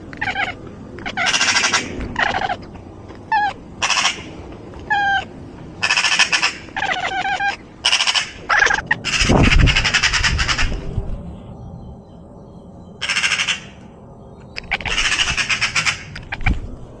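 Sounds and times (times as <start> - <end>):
bird squawking harshly: 0.2 - 2.6, 3.3 - 4.3, 4.9 - 10.8, 13.0 - 13.8, 14.7 - 16.5.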